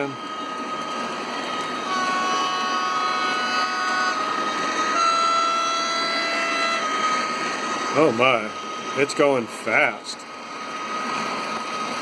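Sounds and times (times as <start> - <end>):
two-tone train horn: 1.4 - 7.3.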